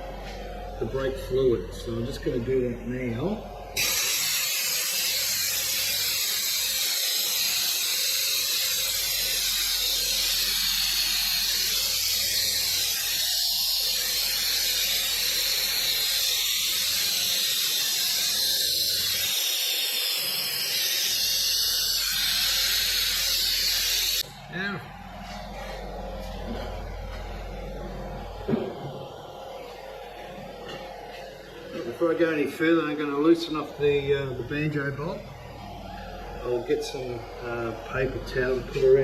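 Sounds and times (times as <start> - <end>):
vacuum brake bleeder hissing: 3.2 - 24.8.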